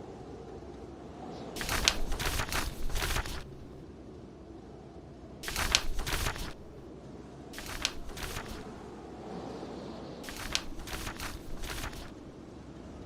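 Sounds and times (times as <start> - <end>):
low blizzard wind: 0.0 - 13.0
book pages turning: 1.6 - 3.8, 5.4 - 6.8, 7.6 - 8.8, 10.2 - 12.2.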